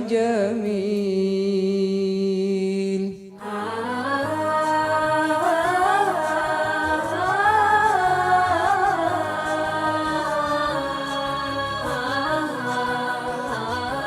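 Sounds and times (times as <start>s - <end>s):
voices humming in harmony: 3.4s - 14.0s.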